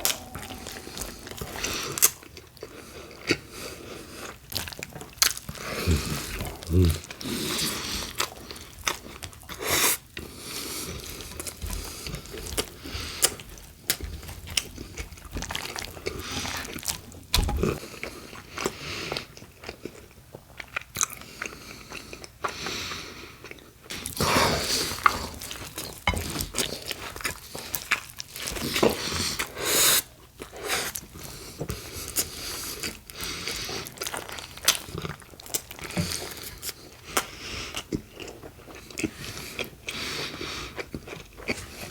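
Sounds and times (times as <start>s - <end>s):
crunchy sandwich bites and chewing: 0.0s - 3.6s.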